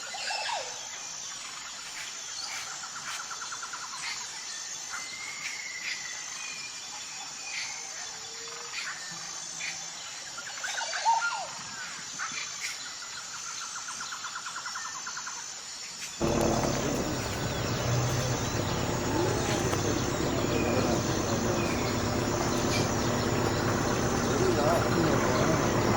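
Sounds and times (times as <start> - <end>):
bird rapid trills: 16.2 - 25.9
wild birds chirping: 16.2 - 25.9.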